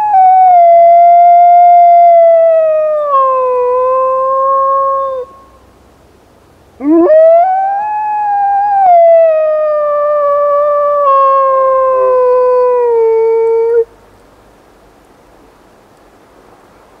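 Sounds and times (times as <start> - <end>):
dog howling: 0.0 - 5.6, 6.8 - 13.9.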